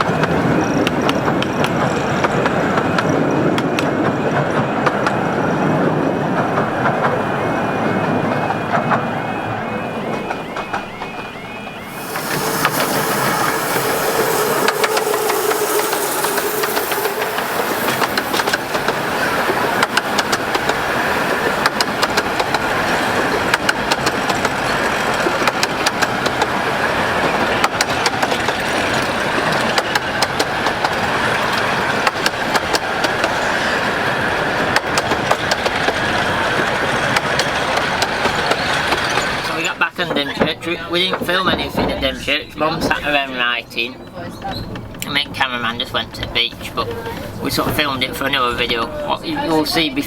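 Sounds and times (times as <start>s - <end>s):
miniature train rumbling: 0.0s - 50.0s
faint tone: 11.8s - 20.1s.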